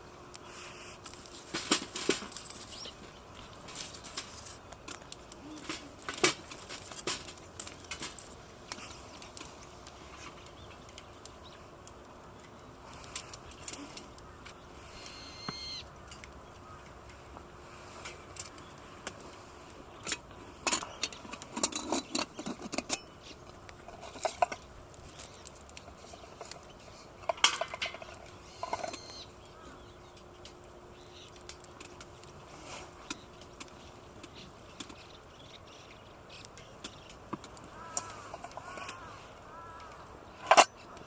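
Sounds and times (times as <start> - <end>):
metal camping gear clinking: 1.0 - 11.2, 17.9 - 39.7, 40.4 - 41.0.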